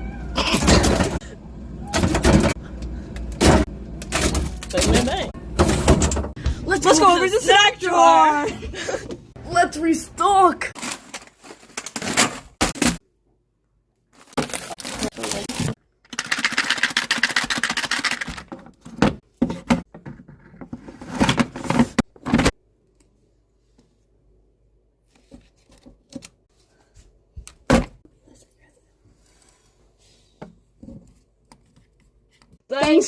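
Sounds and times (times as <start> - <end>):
wrapper crinkling: 10.8 - 12.0, 14.1 - 18.3.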